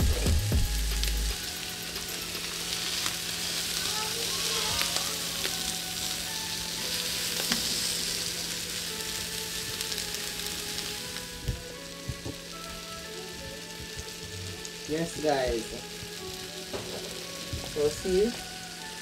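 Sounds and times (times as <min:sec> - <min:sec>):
food sizzling: 0:00.0 - 0:19.0.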